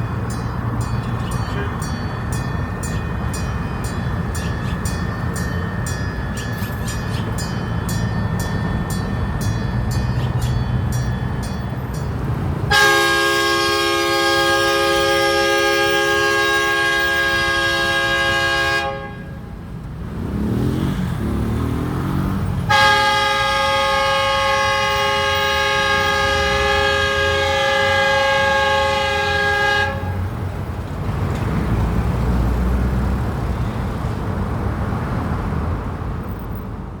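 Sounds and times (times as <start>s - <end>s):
locomotive horn: 12.6s - 19.6s, 22.6s - 30.4s.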